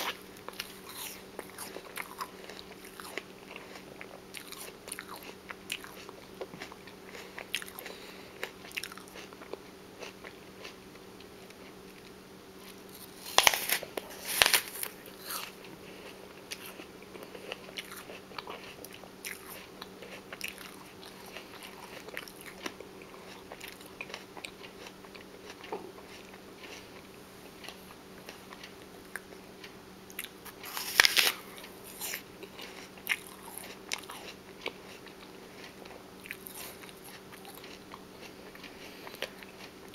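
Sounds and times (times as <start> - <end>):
crunchy bites: 0.0 - 10.8, 12.6 - 22.8, 28.5 - 35.0
wet chewing: 0.0 - 11.8, 12.6 - 39.9.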